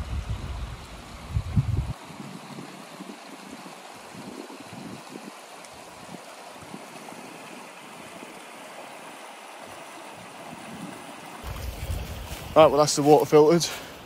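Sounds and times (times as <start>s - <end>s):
stream trickling and babbling: 0.0s - 14.0s.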